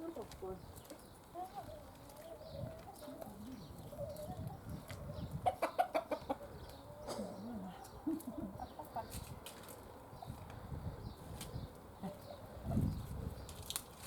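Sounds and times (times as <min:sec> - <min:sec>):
hens clucking: 0:01.4 - 0:09.2.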